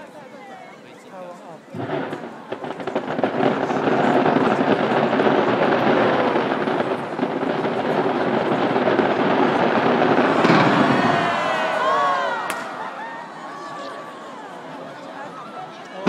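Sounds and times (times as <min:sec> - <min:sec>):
fireworks bursting: 0:01.7 - 0:12.9.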